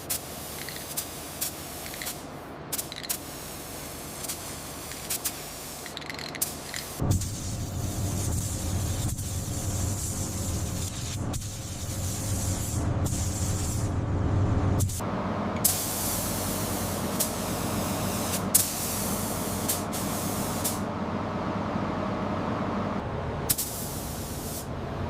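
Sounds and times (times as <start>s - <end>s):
spray tool hissing: 0.0s - 2.2s, 2.8s - 13.9s.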